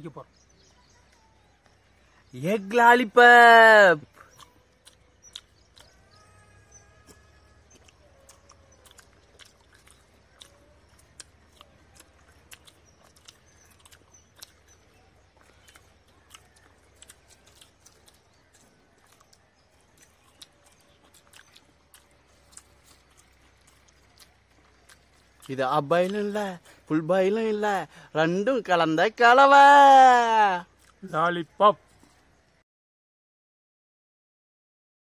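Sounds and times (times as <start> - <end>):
chewing and biting crisp food: 4.1 - 27.8, 30.7 - 31.1, 31.8 - 32.5.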